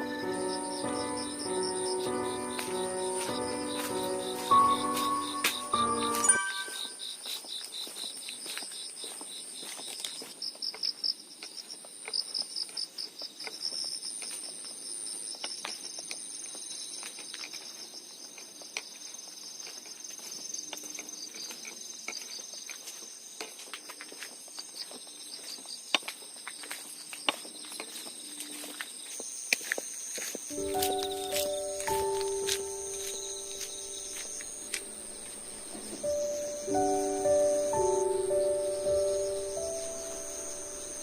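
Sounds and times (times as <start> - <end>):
crickets chirping: 0.0 - 41.0.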